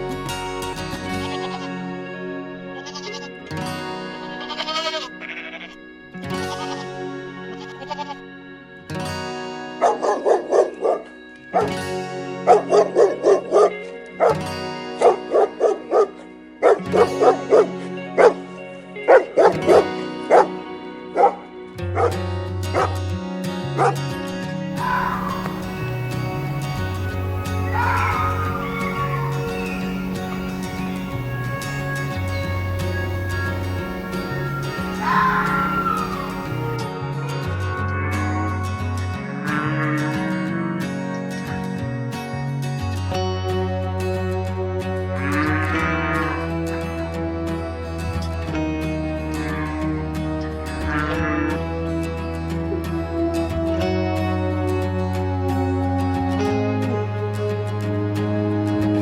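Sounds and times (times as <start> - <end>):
background music with sustained notes: 0.0 - 59.0
dog barking: 9.8 - 11.7, 12.5 - 14.4, 15.0 - 18.4, 19.1 - 20.6, 21.2 - 21.4, 22.0 - 23.0, 23.8 - 24.0, 24.8 - 36.8.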